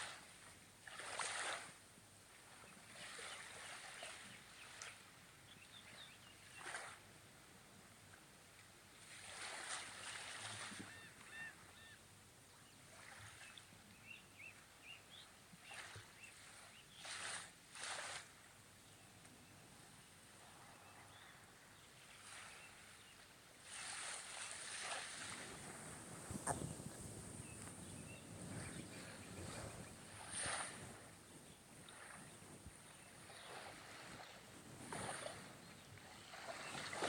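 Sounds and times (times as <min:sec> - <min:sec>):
small waves breaking on shore: 0:00.0 - 0:05.2, 0:08.9 - 0:11.9, 0:12.9 - 0:13.8, 0:15.6 - 0:18.6, 0:21.9 - 0:37.0
faint high bird chirps: 0:10.8 - 0:12.0.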